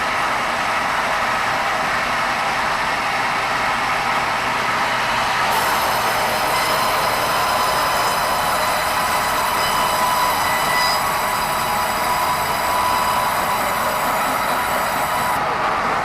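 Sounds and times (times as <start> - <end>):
band saw cutting timber: 5.5 - 15.4.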